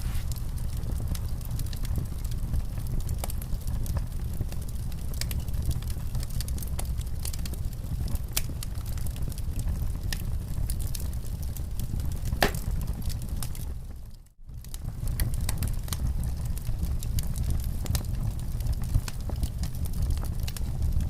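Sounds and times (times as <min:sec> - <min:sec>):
low fire rumble: 0:00.0 - 0:21.0
wood fire crackling: 0:00.0 - 0:21.0
sharp fire pops: 0:12.2 - 0:13.2.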